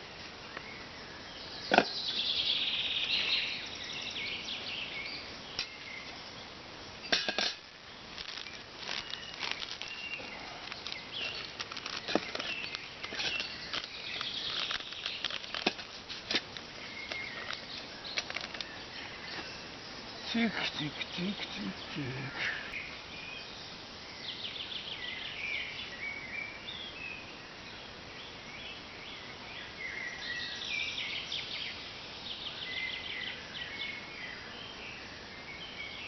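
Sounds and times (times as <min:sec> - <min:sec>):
rustling of camping gear: 0:07.0 - 0:22.9.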